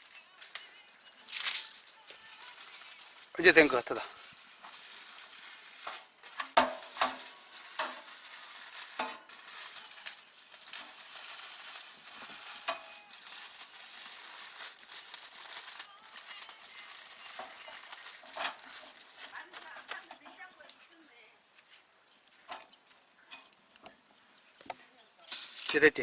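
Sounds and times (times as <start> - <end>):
utensils knocking and scraping: 5.9 - 8.1, 17.3 - 20.6.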